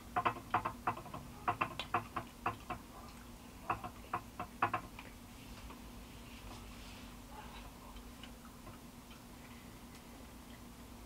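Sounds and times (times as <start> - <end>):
chewing with mouth clicks: 7.6 - 10.9.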